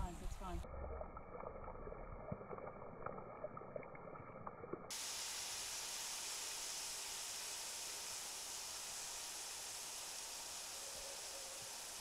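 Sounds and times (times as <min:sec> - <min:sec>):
food frying in a pan: 0:02.2 - 0:12.0
sizzling hiss: 0:04.9 - 0:12.0.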